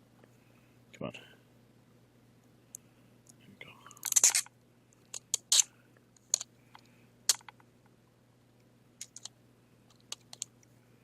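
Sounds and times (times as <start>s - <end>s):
sharp clicks and crinkles of tape: 4.0s - 4.5s, 5.1s - 7.6s, 9.0s - 9.3s.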